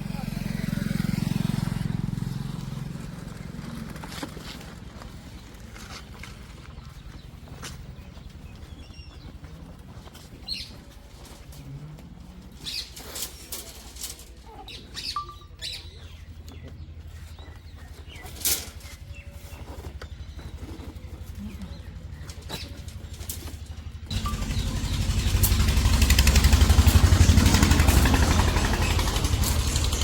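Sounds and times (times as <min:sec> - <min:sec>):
birds chirping: 0:00.0 - 0:30.0
engine idling: 0:16.4 - 0:30.0.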